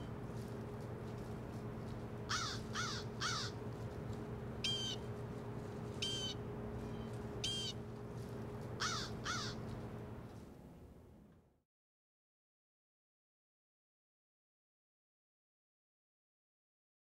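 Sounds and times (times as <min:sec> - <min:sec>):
steady low hum: 0:00.0 - 0:11.6
bird calls: 0:02.3 - 0:03.6, 0:04.6 - 0:05.1, 0:06.0 - 0:07.8, 0:08.8 - 0:09.7.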